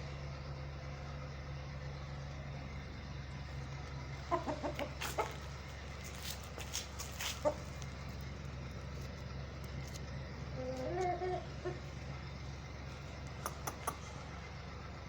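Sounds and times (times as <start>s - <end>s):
steady low hum: 0.0s - 15.0s
chickens clucking: 4.0s - 8.3s, 9.9s - 12.2s, 13.0s - 14.4s
sharp clicks: 13.3s - 14.1s.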